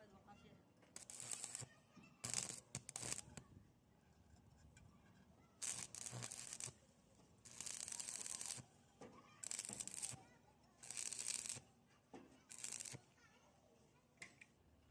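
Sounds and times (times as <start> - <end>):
welding arc crackling: 1.0 - 3.4, 5.6 - 6.8, 7.5 - 8.6, 9.4 - 10.2, 10.8 - 11.6, 12.5 - 13.0.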